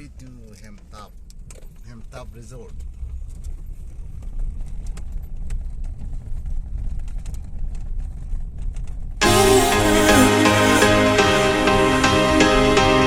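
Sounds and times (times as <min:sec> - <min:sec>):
light rattles and clicks: 0:00.0 - 0:09.2
car driving rumble: 0:00.0 - 0:13.0
music: 0:09.2 - 0:13.0.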